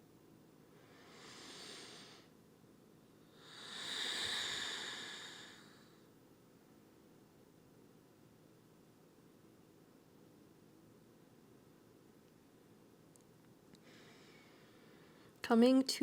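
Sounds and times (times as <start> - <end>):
person breathing: 0.8 - 2.3, 3.3 - 6.1, 13.8 - 15.4.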